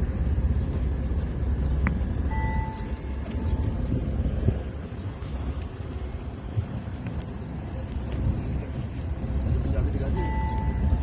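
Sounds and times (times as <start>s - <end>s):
low engine rumble: 0.0s - 11.0s
steady beep tone: 2.2s - 3.8s, 10.2s - 11.0s.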